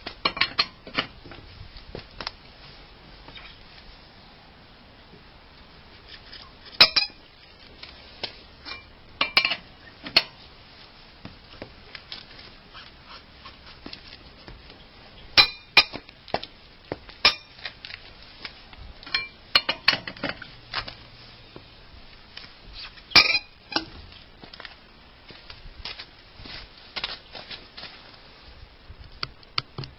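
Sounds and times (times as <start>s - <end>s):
metal tools clinking: 8.6s - 10.3s, 19.1s - 20.4s, 23.2s - 23.9s.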